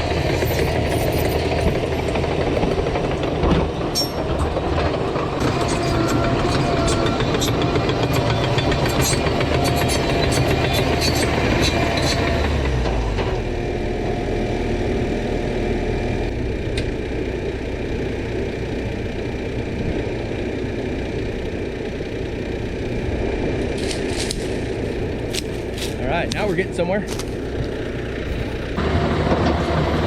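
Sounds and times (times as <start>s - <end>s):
diesel engine running: 0.0s - 30.0s
brush cracking and clattering: 23.8s - 24.7s, 25.3s - 27.8s.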